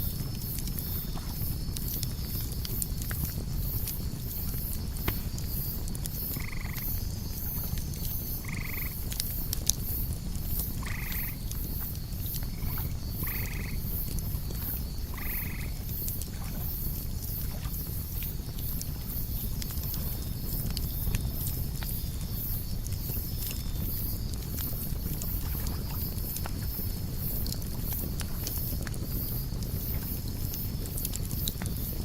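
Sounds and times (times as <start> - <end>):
crickets chirping: 0.0 - 32.0
fire crackles: 0.0 - 32.0
fire rumble: 0.0 - 32.0
steady high insect tone: 0.0 - 32.0
croaking animal calls: 6.3 - 6.9, 8.4 - 9.0, 10.8 - 11.4, 12.4 - 13.8, 15.0 - 15.9.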